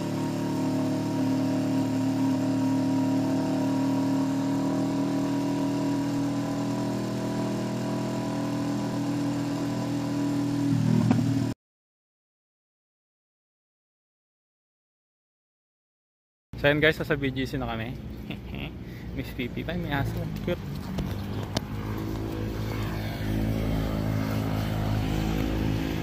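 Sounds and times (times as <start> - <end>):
motorcycle engine running: 0.0 - 11.6, 19.8 - 26.0.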